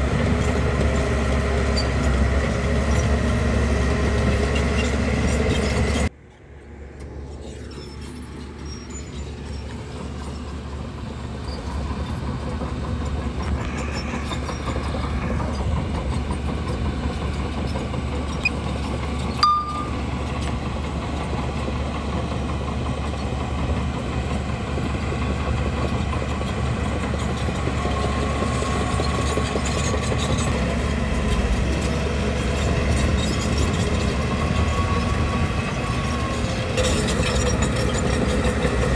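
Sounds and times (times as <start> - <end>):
bulldozer engine under load: 0.0 - 6.1, 6.8 - 38.9
machinery clatter: 11.6 - 20.8.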